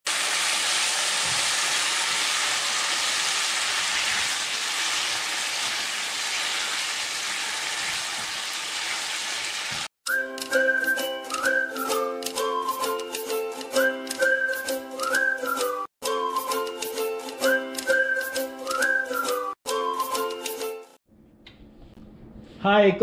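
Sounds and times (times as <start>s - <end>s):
meat sizzling in a hot pan: 0.1s - 9.9s
music: 10.1s - 21.0s.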